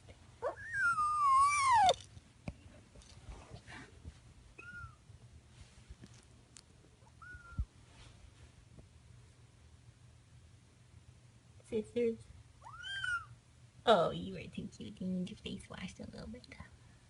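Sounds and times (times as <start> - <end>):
kitten chirping: 0.4 - 2.0, 4.6 - 5.0, 7.0 - 7.7, 12.6 - 13.3
kitten meowing: 0.4 - 2.0, 4.6 - 5.0, 7.2 - 7.7, 12.6 - 13.3.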